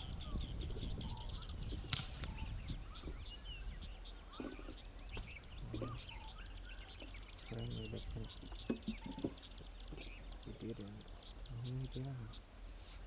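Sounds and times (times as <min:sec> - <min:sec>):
birds chirping and trilling: 0:00.0 - 0:13.0
sharp click: 0:01.9 - 0:02.5.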